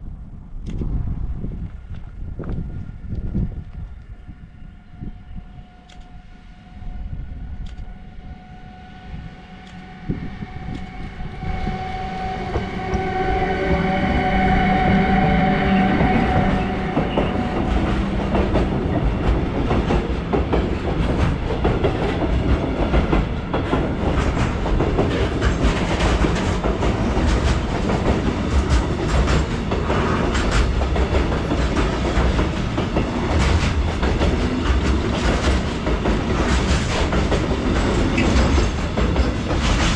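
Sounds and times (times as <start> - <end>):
train high whine: 0.0 - 39.9
wheels clacking over rail joints: 16.0 - 39.9.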